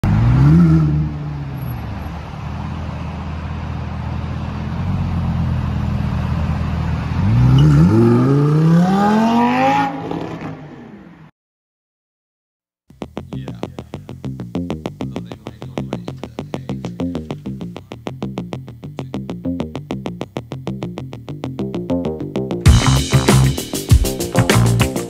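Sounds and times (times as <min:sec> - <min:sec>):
car engine revving and accelerating: 0:00.0 - 0:11.3.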